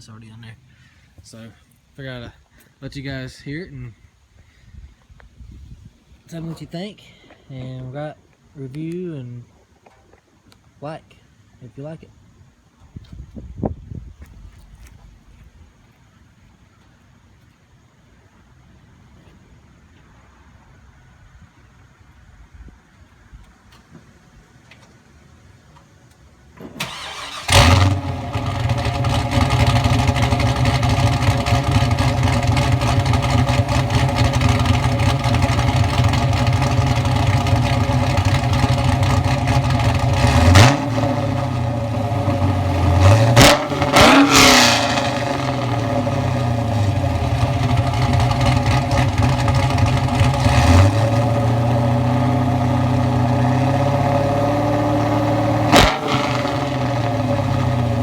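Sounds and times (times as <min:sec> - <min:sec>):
car engine starting and idling: 0:26.6 - 0:58.0
engine throttle blips: 0:26.8 - 0:58.0.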